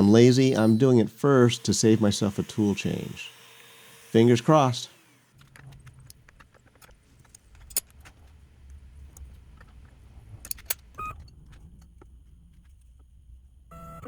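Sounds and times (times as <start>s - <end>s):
cnc router cutting wood: 0.0s - 5.3s
sharp clicks and ticks: 5.4s - 13.1s.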